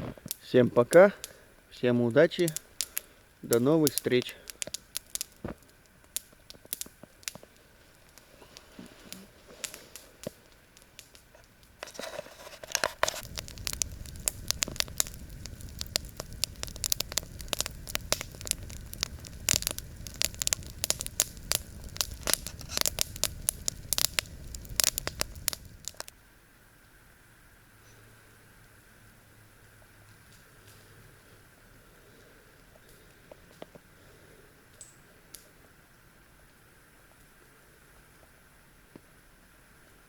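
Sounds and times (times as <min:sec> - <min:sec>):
campfire crackling and popping: 0:00.0 - 0:26.3, 0:29.6 - 0:35.8
low fire rumble: 0:00.0 - 0:27.5.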